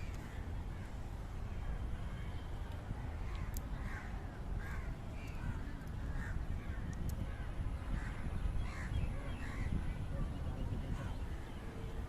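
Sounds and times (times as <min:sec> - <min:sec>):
birds calling: 0:03.1 - 0:12.0.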